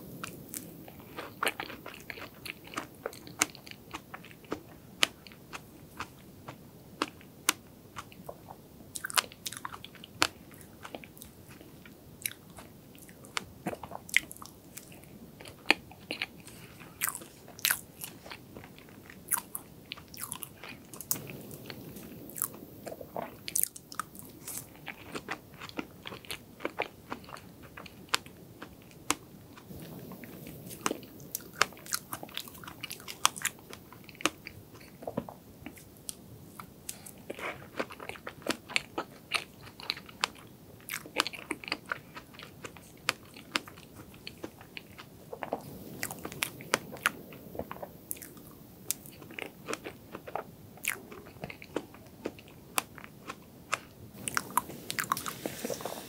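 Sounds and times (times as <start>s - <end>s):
crunching: 13.7s - 35.8s, 53.0s - 56.0s.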